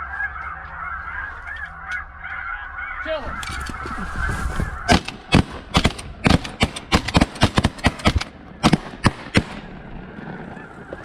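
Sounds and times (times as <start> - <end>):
shotgun blasts: 4.9 - 9.8.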